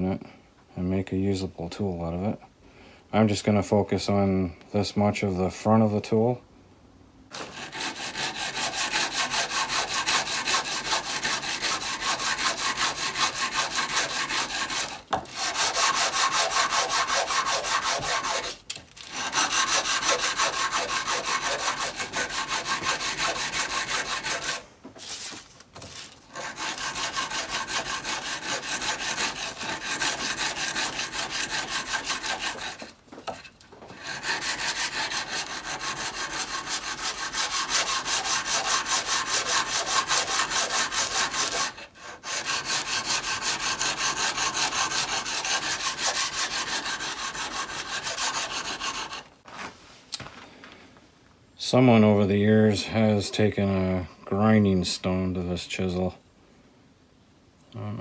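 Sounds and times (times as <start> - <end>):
chisel scraping on sharpening stone: 7.4 - 24.6.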